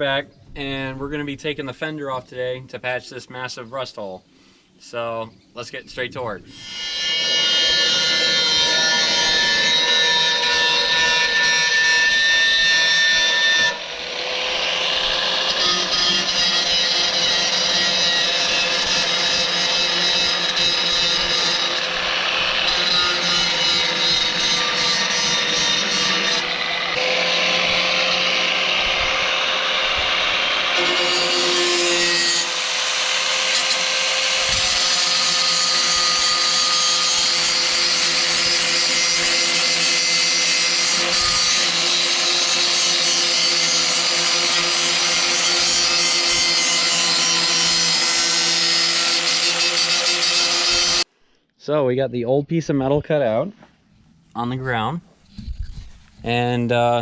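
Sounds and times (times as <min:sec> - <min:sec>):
angle grinder cutting metal: 0:06.5 - 0:51.1.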